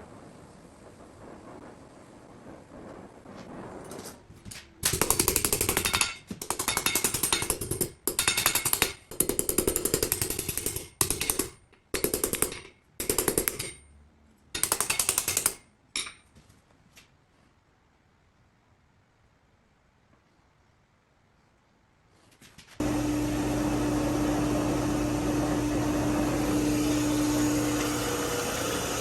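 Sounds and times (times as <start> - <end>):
power hammer striking: 22.8 - 29.0.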